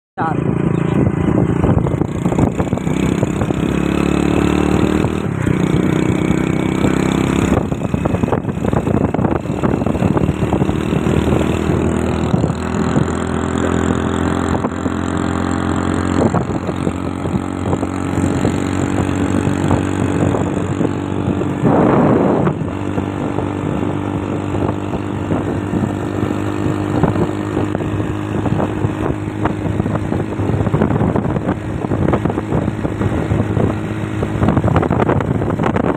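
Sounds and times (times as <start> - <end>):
motorcycle engine running: 0.2 - 35.9
rush of noise: 15.7 - 35.9.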